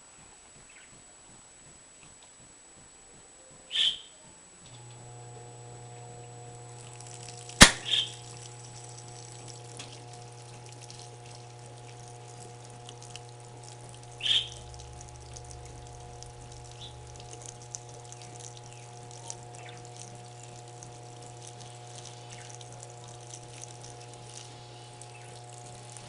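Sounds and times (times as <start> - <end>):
washing machine hum: 4.2 - 26.0
water running into drum: 4.8 - 26.0
sharp click: 7.6 - 8.2.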